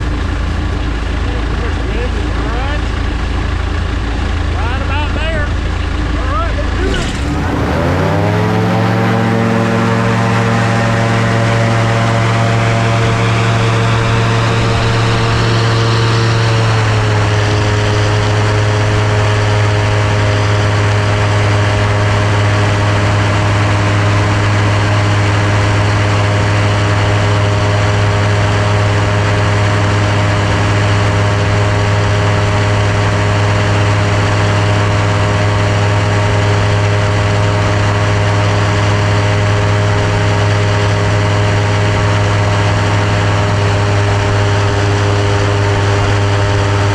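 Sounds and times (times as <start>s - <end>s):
seaplane engine drone: 0.0s - 46.9s.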